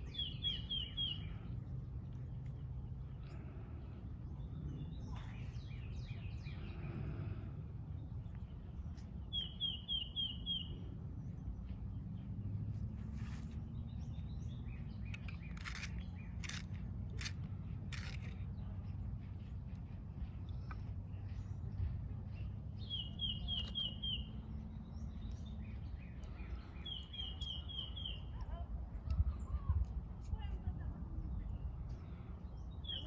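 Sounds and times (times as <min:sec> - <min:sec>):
small bird chirping: 0:00.0 - 0:01.7, 0:08.9 - 0:12.3, 0:13.2 - 0:19.5, 0:22.3 - 0:28.5
low outdoor background rumble: 0:00.0 - 0:33.0.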